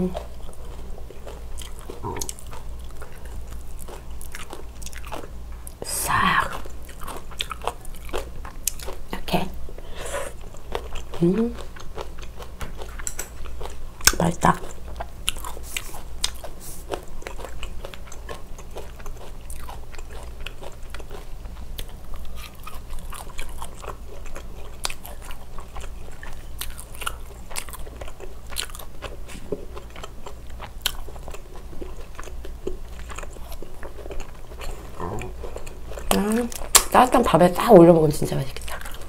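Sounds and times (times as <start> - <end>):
person chewing and biting ribs: 0.0 - 5.8, 6.5 - 9.1, 10.0 - 37.0, 38.6 - 39.0.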